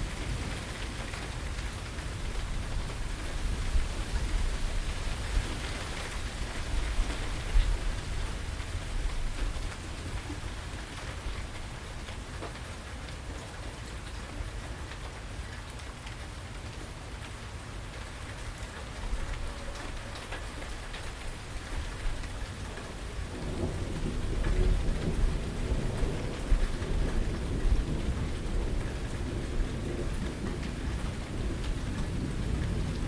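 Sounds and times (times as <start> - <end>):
steady rain falling: 0.0 - 33.0
thunder rumbling: 18.9 - 33.0.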